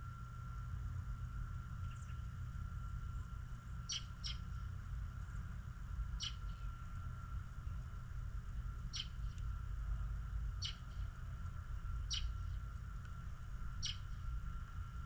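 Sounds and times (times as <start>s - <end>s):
steady low rumble: 0.0s - 15.0s
thin high whine: 0.0s - 15.0s
songbirds chirping: 3.8s - 5.4s, 6.2s - 6.8s, 8.8s - 9.4s, 10.5s - 11.1s, 12.0s - 12.6s, 13.8s - 14.2s.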